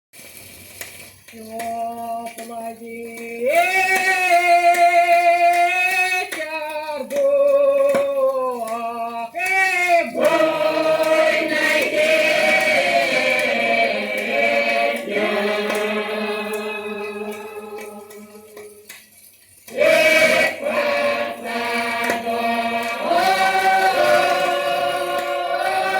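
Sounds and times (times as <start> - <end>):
choir singing a slow folk song: 2.4 - 6.1, 6.8 - 19.0, 19.7 - 25.9.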